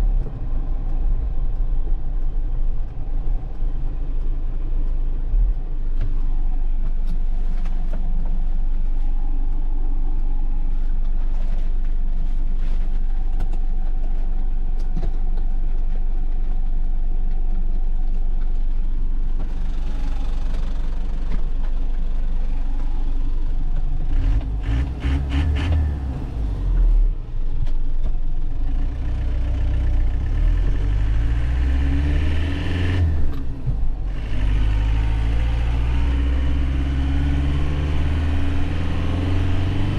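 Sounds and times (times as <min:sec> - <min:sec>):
truck engine and road rumble: 0:00.0 - 0:39.9
engine revving up: 0:24.1 - 0:26.9, 0:30.3 - 0:39.9.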